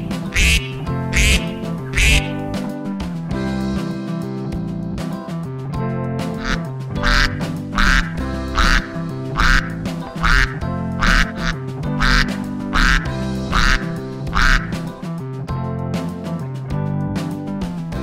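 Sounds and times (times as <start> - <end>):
duck quacking: 0.0 - 2.6, 6.4 - 14.9
background music: 0.0 - 18.0.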